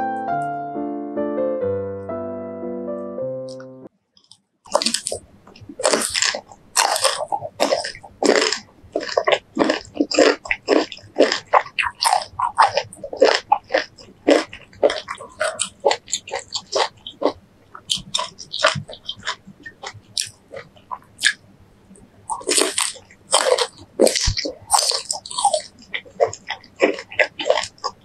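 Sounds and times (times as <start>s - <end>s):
piano music: 0.0s - 3.9s
crunchy bites and chewing: 4.2s - 21.4s, 22.3s - 28.0s.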